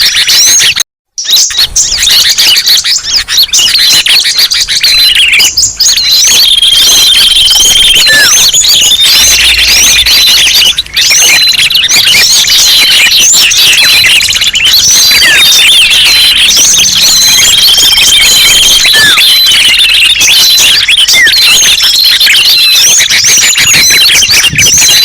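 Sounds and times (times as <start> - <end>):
songbirds chirping and twittering: 0.0 - 25.0
steady high whistle: 1.5 - 25.0.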